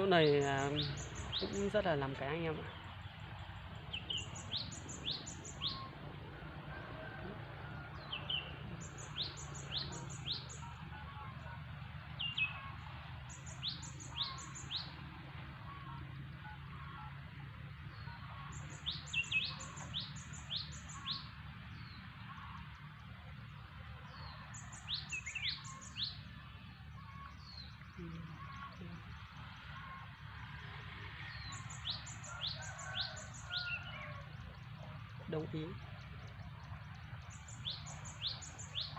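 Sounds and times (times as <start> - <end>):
steady low hum: 0.0 - 38.9
small bird chirping: 27.0 - 38.9.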